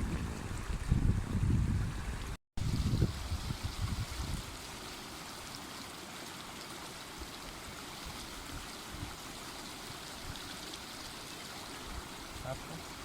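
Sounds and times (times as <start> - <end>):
river flowing: 3.2 - 13.0.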